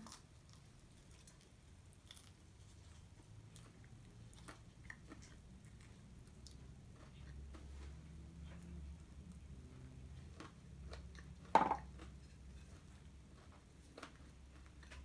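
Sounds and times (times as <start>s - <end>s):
person chewing fried chicken: 0.0s - 15.0s.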